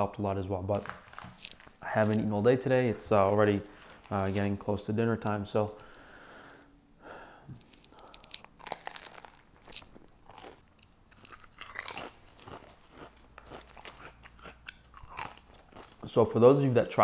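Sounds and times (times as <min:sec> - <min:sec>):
person chewing crunchy chips: 0:07.6 - 0:16.1.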